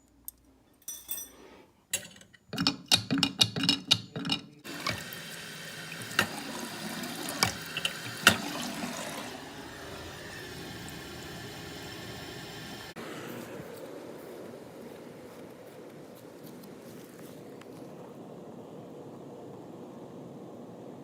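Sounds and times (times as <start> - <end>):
toilet flushing: 4.6 - 13.0
toilet tank refilling: 4.6 - 13.0.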